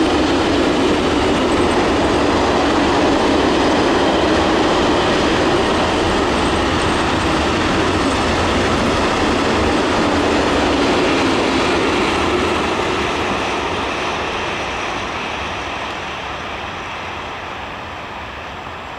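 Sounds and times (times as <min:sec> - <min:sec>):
train wheels rumbling on track: 0:00.0 - 0:18.9.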